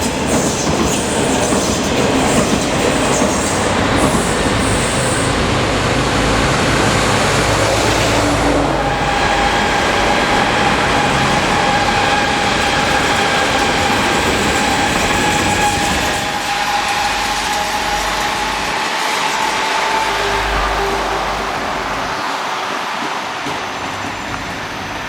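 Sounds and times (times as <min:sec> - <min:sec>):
train wheels on rails: 0:00.0 - 0:25.0
high-pitched whine: 0:14.3 - 0:22.6.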